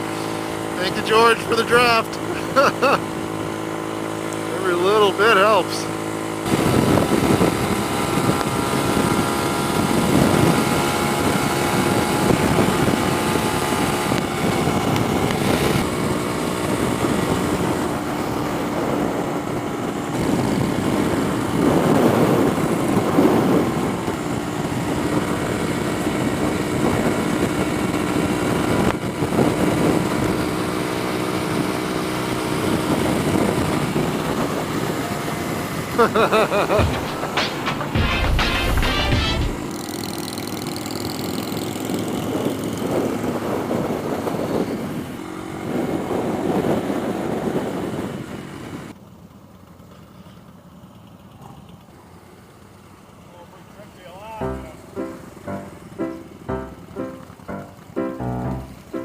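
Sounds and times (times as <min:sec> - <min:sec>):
small motorcycle engine running: 0:00.0 - 0:38.0, 0:38.6 - 0:56.5
wind rushing over microphone: 0:06.4 - 0:30.6.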